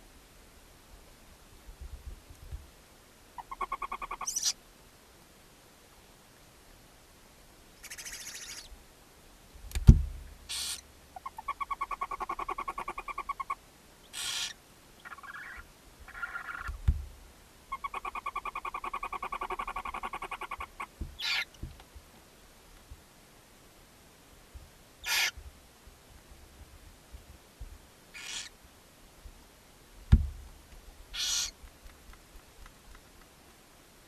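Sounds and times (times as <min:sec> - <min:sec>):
owl rasping hisses: 0:10.5 - 0:10.8, 0:14.1 - 0:16.7, 0:21.2 - 0:21.5, 0:25.0 - 0:25.4, 0:28.2 - 0:28.5, 0:31.2 - 0:31.6
owlets begging screeches: 0:25.1 - 0:25.3, 0:31.2 - 0:31.5
dull thumps against box: 0:30.1 - 0:30.4.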